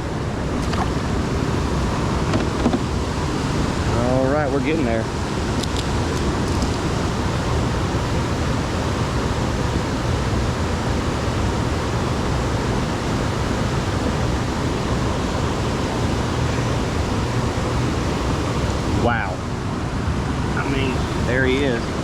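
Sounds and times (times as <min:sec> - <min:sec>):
rushing noise with low rumble: 0:00.0 - 0:22.0.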